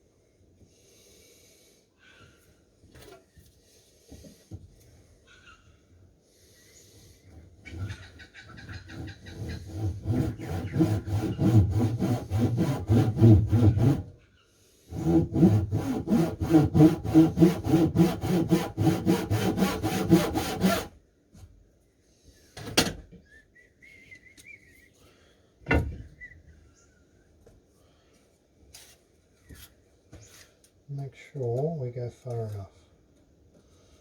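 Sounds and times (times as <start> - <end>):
hand saw cutting wood: 7.6 - 14.1, 14.9 - 21.0.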